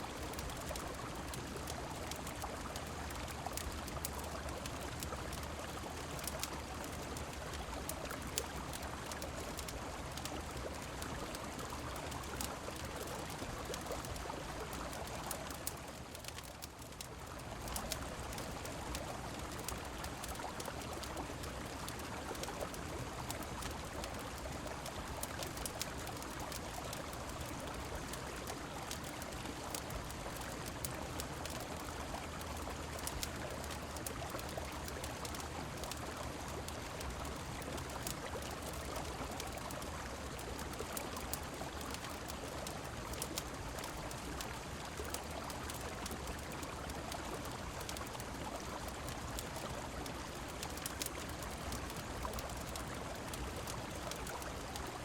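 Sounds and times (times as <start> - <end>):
rain falling: 0.0 - 55.0
wood fire crackling: 0.1 - 55.0.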